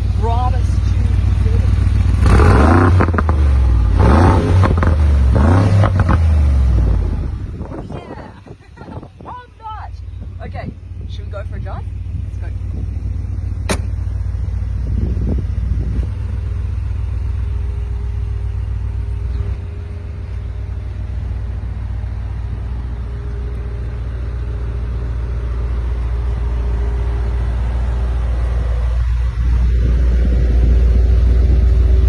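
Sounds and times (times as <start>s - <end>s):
car engine driving off: 0.0s - 8.9s, 11.9s - 32.0s.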